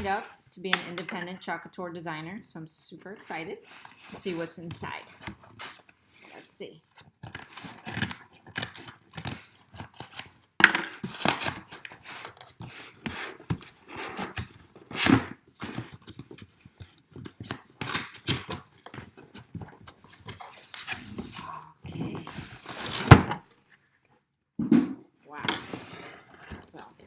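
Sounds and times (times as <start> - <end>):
cardboard box rustling and scraping: 11.0 - 23.5.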